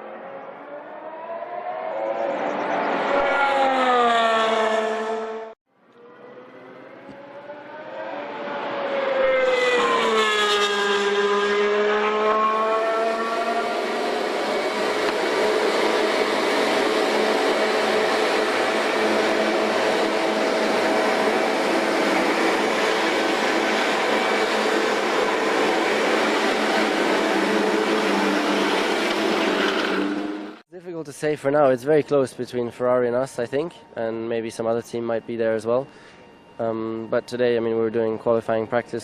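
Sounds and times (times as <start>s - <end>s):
racing car engine running loud: 0.0s - 30.6s.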